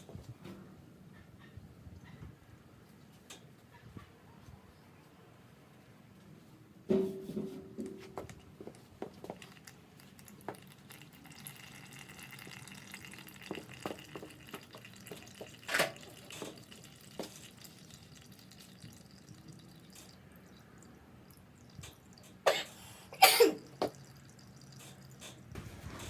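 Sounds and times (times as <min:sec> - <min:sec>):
oil trickling and dripping: 0:07.7 - 0:26.0.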